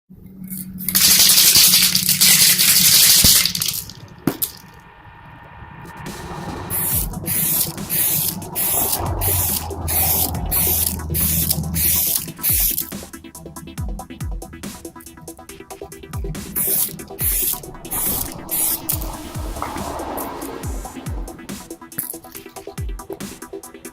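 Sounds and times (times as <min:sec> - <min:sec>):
spray can hissing: 0:00.5 - 0:04.6, 0:06.7 - 0:13.2, 0:16.2 - 0:23.2
pulsing music with bass: 0:06.0 - 0:23.9.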